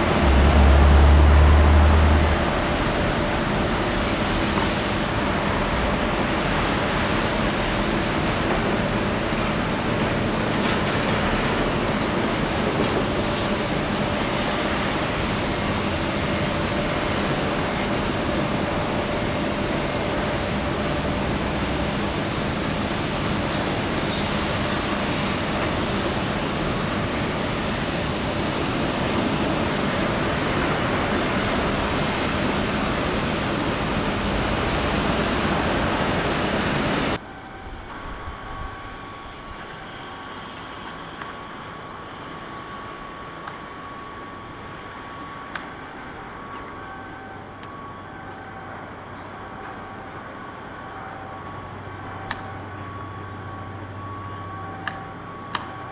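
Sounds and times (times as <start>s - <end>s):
loud rushing noise: 0.0s - 24.0s.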